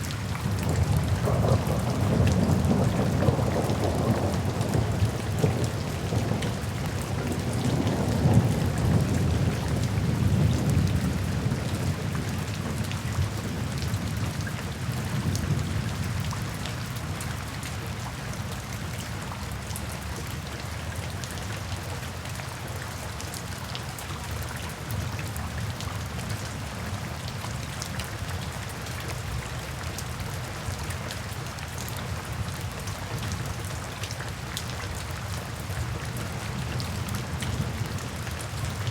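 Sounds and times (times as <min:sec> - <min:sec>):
steady rainfall: 0:00.0 - 0:38.9
low rumble of thunder: 0:00.3 - 0:17.5, 0:35.8 - 0:38.9.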